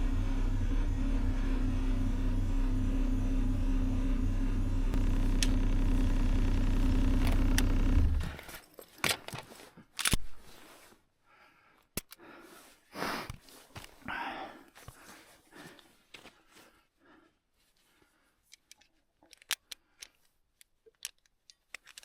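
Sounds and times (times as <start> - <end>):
low droning hum: 0.0 - 8.4.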